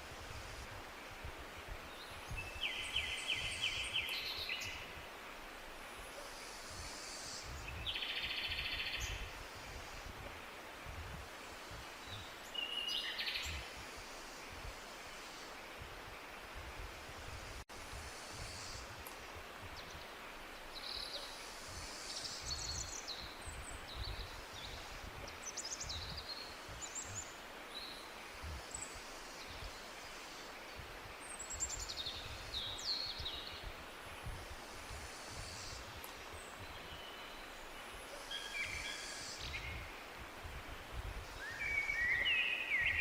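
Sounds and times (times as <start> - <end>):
songbirds chirping: 0.0 - 43.0
steady hiss: 0.0 - 43.0.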